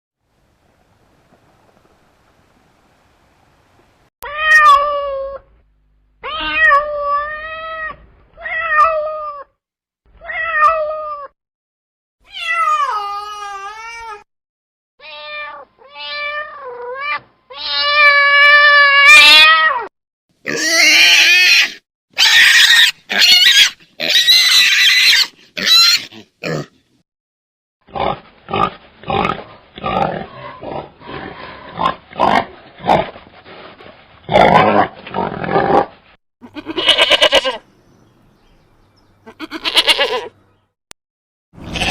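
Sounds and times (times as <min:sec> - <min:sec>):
cat meowing: 0:06.2 - 0:09.5, 0:10.2 - 0:11.3, 0:15.0 - 0:19.9.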